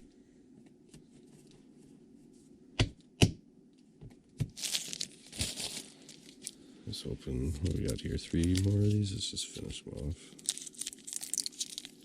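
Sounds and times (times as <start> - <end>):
cards rustling: 4.6 - 6.6, 7.3 - 9.3.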